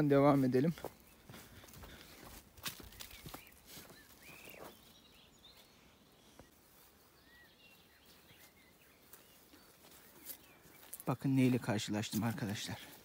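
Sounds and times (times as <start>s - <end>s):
soft footsteps: 0.0s - 13.0s
faint bird chirps: 2.7s - 11.6s.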